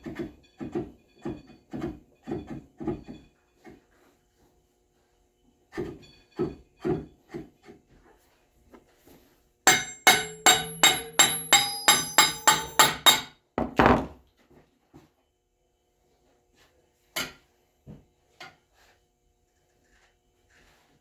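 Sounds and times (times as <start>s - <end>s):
hammer striking metal: 9.7s - 13.4s.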